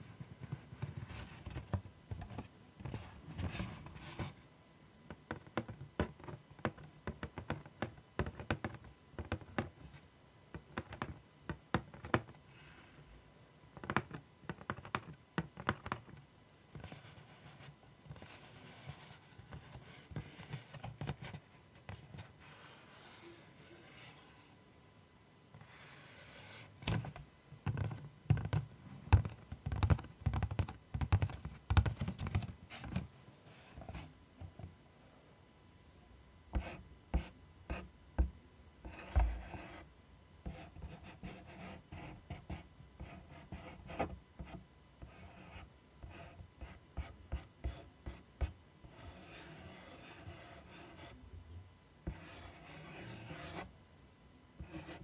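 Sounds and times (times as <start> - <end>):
soft scratching: 16.8 - 24.6.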